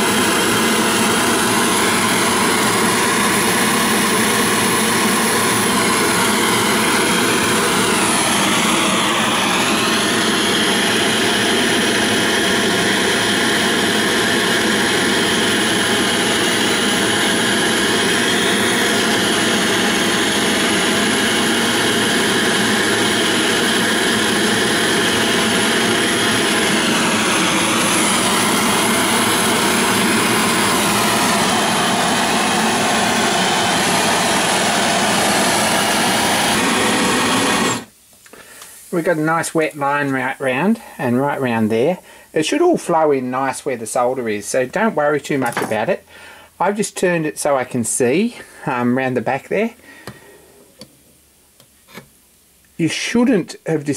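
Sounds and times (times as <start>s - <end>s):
gas torch burner roaring: 0.0s - 41.7s.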